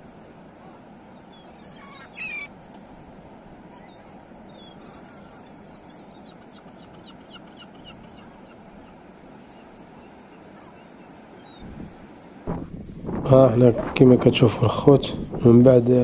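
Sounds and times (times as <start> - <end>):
birds calling: 0.0 - 16.0.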